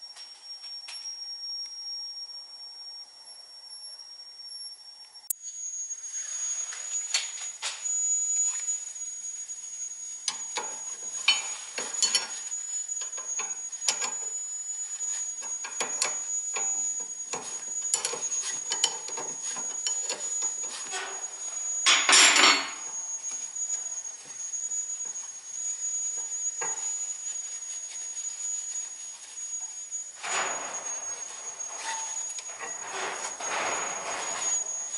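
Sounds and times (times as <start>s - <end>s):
metal hand tools clinking: 10.3s - 12.4s.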